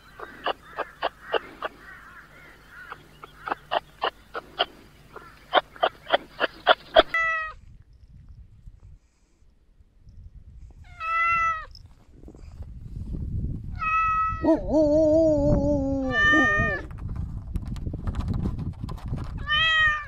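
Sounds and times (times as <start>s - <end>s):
cat meowing: 16.0s - 16.8s.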